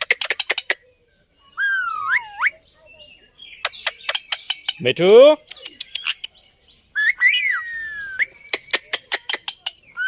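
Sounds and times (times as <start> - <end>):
parrot whistled call: 1.6 - 2.6, 7.0 - 8.3
parrot clicking chirps: 5.4 - 6.3.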